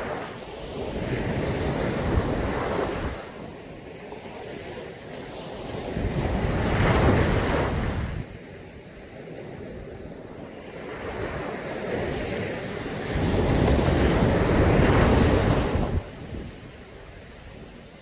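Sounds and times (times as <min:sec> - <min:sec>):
surf washing onto a beach: 0:00.0 - 0:18.0
wind buffeting microphone: 0:05.6 - 0:08.5, 0:09.5 - 0:18.0.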